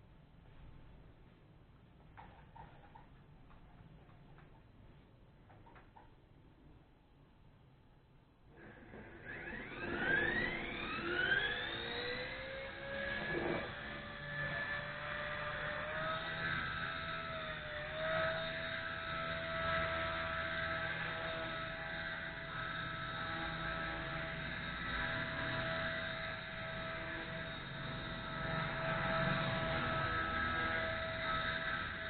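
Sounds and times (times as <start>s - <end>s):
toy helicopter motor whine: 8.5s - 32.0s.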